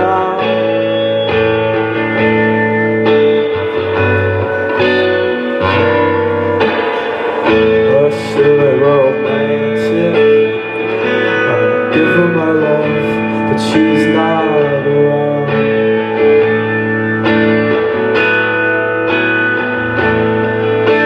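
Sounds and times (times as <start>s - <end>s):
person singing: 0.0s - 16.7s
guitar chords: 0.0s - 21.0s.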